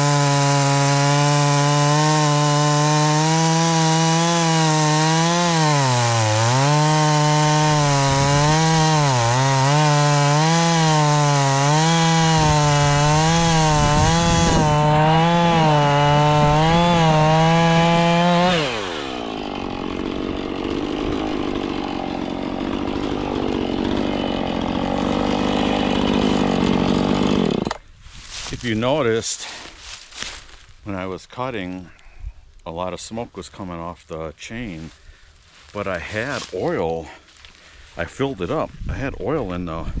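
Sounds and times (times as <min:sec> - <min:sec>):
chainsaw cutting wood: 0:00.0 - 0:28.5.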